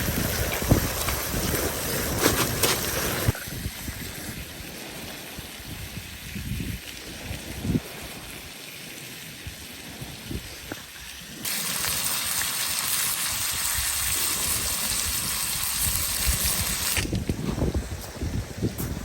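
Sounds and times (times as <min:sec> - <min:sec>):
steak sizzling in a pan: 0:11.4 - 0:17.0.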